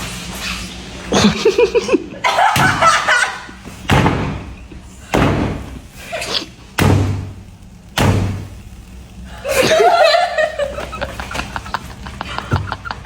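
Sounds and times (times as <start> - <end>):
heavy thuds: 3.8 - 5.8.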